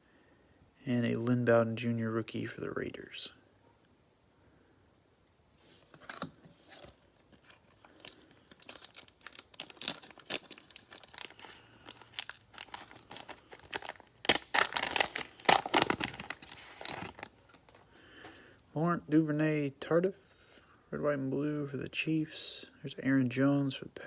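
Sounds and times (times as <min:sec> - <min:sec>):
cellophane wrapper crinkling and tearing: 0:06.0 - 0:17.8.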